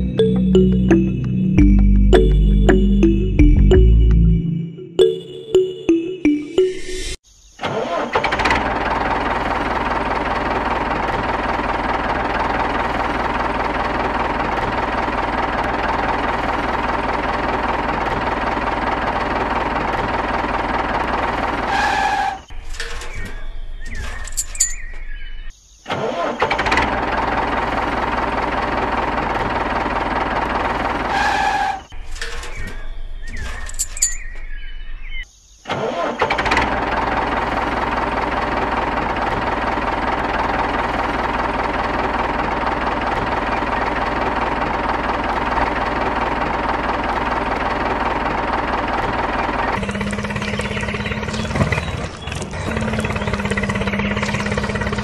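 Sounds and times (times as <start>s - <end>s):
model tractor engine running: 8.0s - 21.9s, 26.4s - 31.1s, 36.0s - 55.0s.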